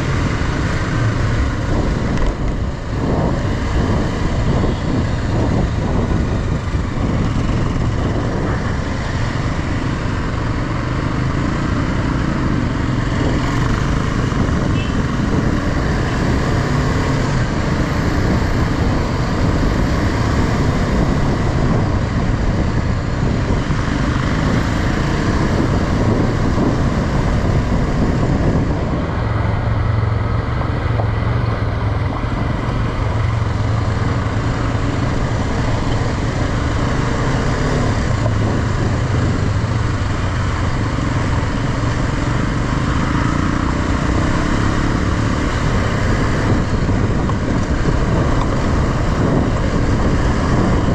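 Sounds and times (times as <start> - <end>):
motorcycle engine running: 0.0 - 50.9
wind noise: 0.0 - 50.9.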